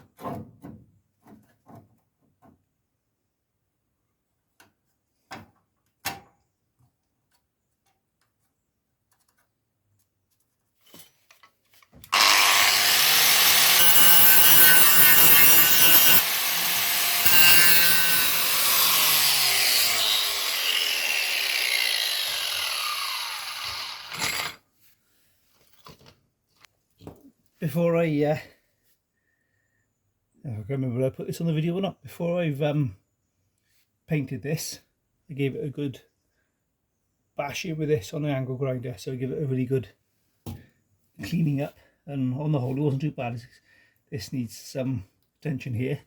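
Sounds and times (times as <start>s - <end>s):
angle grinder grinding steel: 12.1s - 24.6s.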